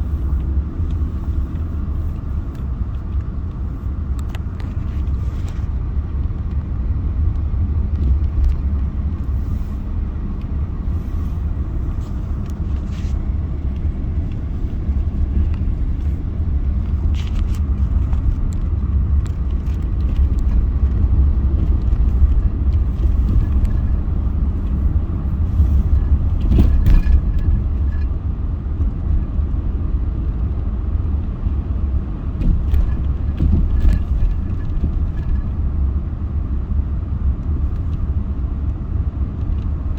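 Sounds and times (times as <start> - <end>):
road and engine noise inside car: 0.0 - 39.9
knocks from bumps: 32.4 - 35.3.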